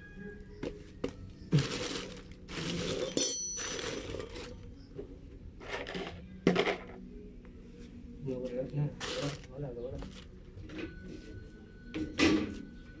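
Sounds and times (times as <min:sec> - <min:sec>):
metallic clink: 0:03.1 - 0:04.2.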